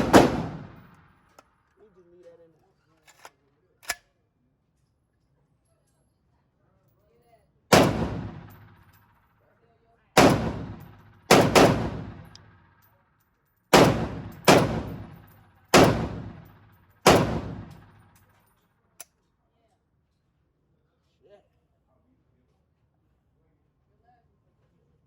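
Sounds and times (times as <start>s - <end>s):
rifle shots echoing: 0.0s - 1.1s, 7.7s - 8.9s, 10.2s - 12.6s, 13.7s - 18.2s.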